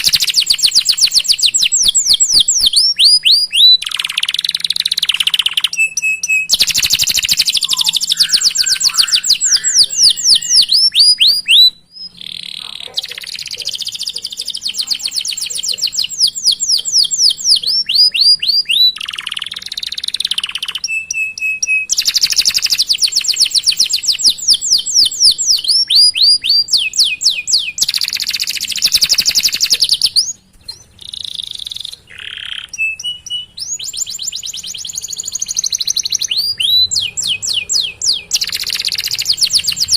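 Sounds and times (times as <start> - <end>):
canary whistled notes: 0.0 - 12.4, 15.9 - 22.7, 32.2 - 39.9
canary singing rapid chirps: 0.0 - 39.9.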